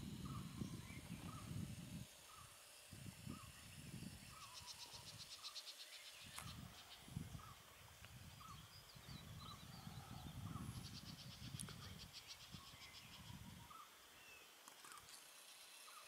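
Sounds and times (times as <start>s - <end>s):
high bird chirps and trill: 3.3s - 7.7s.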